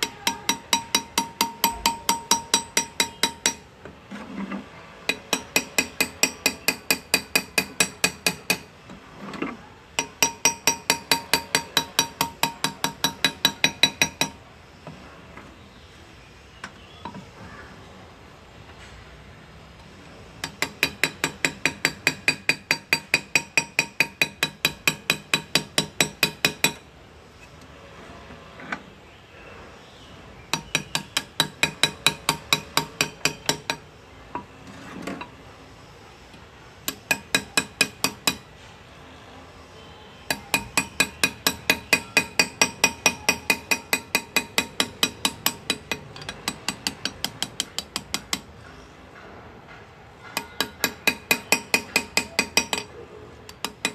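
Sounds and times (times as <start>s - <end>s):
hammer tapping graver into metal: 0.0s - 3.6s, 5.1s - 8.7s, 10.0s - 14.4s, 20.4s - 26.8s, 30.5s - 33.8s, 36.9s - 38.5s, 40.3s - 48.5s, 50.2s - 52.9s, 53.5s - 53.9s.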